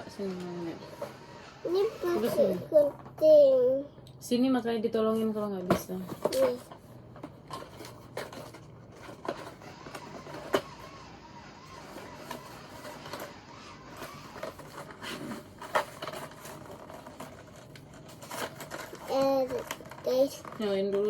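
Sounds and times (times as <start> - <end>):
plastic packaging rustling: 5.9 - 11.0, 11.7 - 21.0.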